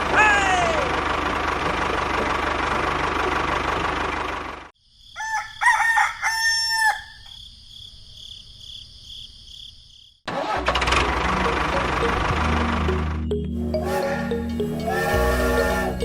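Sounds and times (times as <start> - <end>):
small engine running: 0.0 - 4.7, 10.3 - 13.2
rooster crowing: 5.0 - 7.4, 13.8 - 16.0.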